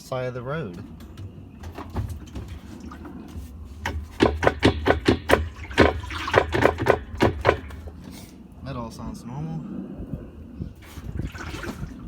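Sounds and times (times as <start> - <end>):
washer drum clicks and knocks: 3.8 - 8.0.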